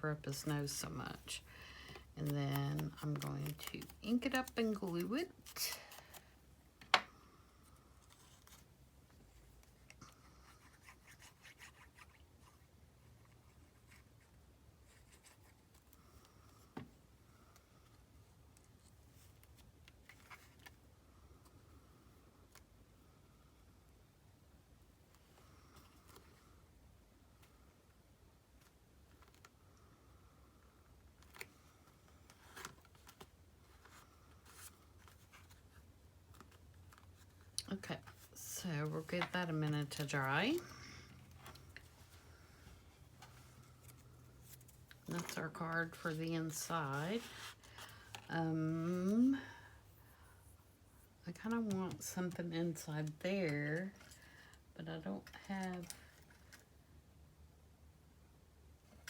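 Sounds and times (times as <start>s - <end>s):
rubbing and scratching on paper: 8.0s - 15.9s
low steady hum: 20.7s - 59.0s
paper rustling: 43.2s - 48.3s.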